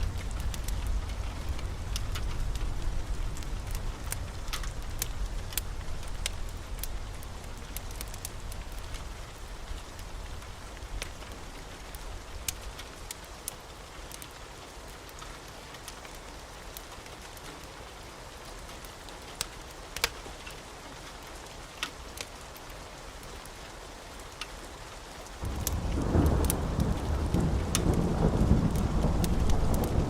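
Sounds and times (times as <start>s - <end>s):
steady rain falling: 0.0s - 30.0s
wood fire crackling: 0.0s - 30.0s
thunder rumbling: 25.4s - 30.0s.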